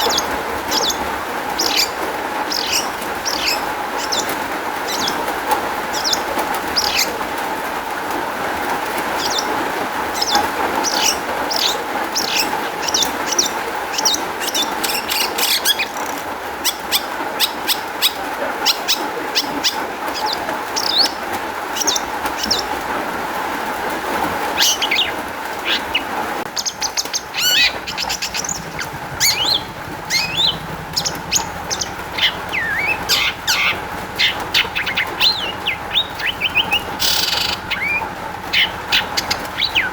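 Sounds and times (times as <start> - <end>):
bird singing chirps and whistles: 0.0 - 1.0, 1.6 - 5.2, 9.2 - 9.5, 10.2 - 21.2, 26.5 - 39.9
steady background noise: 0.0 - 39.9.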